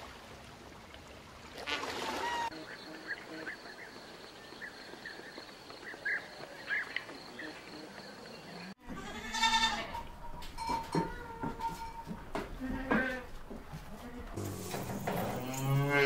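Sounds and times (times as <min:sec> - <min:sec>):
goat bleating: 0:08.8 - 0:10.2, 0:10.9 - 0:14.6.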